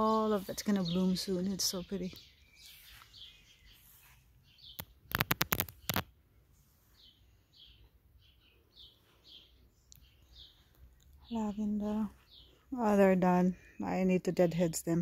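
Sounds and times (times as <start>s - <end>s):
small birds chirping: 0.0s - 15.0s
sharp clicks or knocks: 4.8s - 6.1s.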